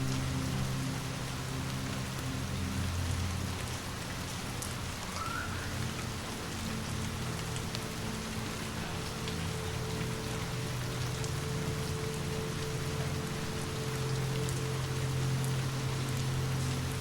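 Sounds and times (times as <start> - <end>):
fireplace crackling: 0.0 - 17.0
low steady drone: 0.0 - 17.0
steady rain falling: 0.0 - 17.0.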